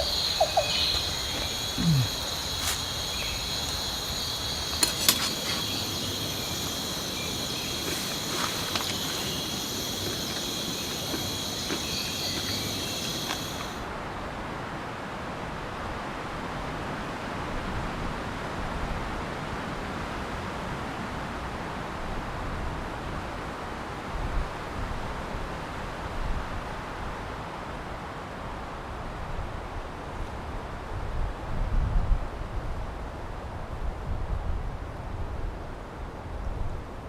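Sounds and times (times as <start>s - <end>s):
insect chorus buzzing: 0.0s - 13.8s
steady hiss: 0.0s - 13.9s.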